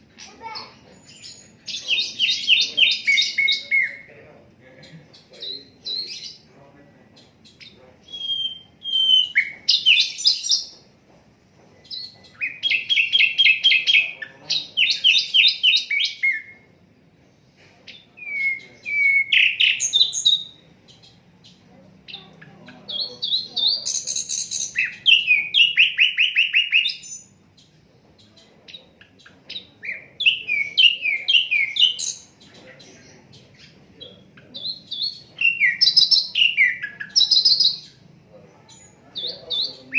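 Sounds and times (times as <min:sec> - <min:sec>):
flycatcher singing: 0:00.0 - 0:04.1, 0:11.8 - 0:16.8, 0:17.9 - 0:39.9.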